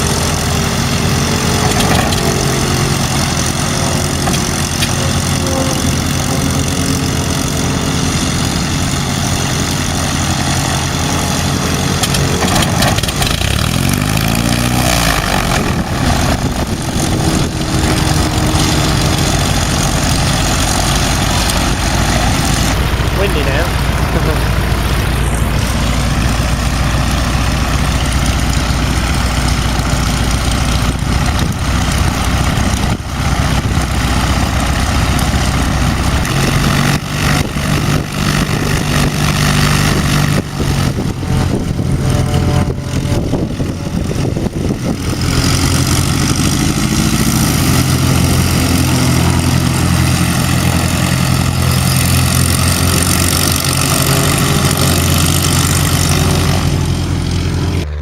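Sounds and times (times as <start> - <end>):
propeller aircraft engine drone: 0.0 - 58.0
wind buffeting microphone: 12.2 - 51.4.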